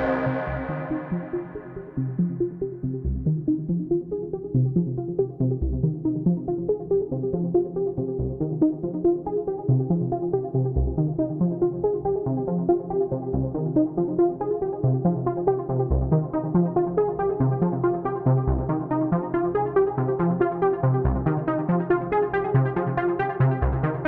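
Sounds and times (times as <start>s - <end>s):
deep synth bass note: 0.0s - 2.2s
sequenced synth notes: 0.0s - 2.6s.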